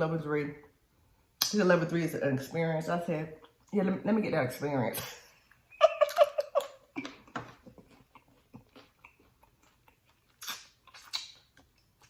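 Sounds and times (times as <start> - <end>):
chewing and wet mouth noises: 3.3 - 3.8, 5.5 - 12.0
small mouth clicks: 8.1 - 12.0
loud mouth smacks: 9.0 - 11.8.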